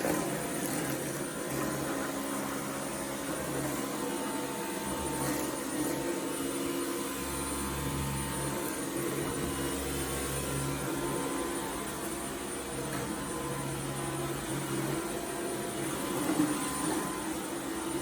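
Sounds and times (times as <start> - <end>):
vacuum cleaner motor whine: 0.0 - 18.0.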